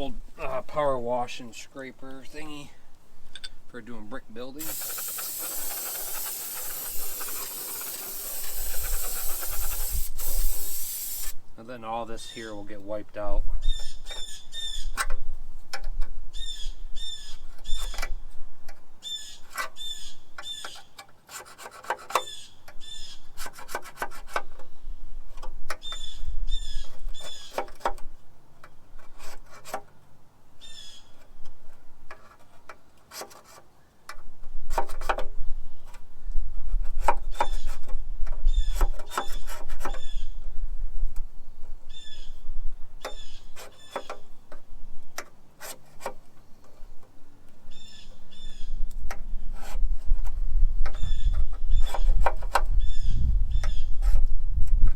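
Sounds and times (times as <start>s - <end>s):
scraper scraping metal: 4.6s - 11.4s, 19.2s - 24.7s, 29.0s - 29.9s, 31.7s - 33.7s, 45.6s - 46.7s.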